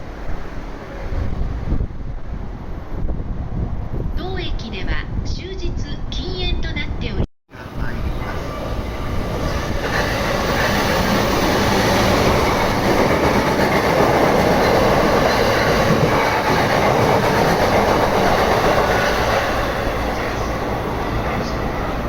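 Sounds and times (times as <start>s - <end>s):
train wheels on rails: 7.8s - 22.0s.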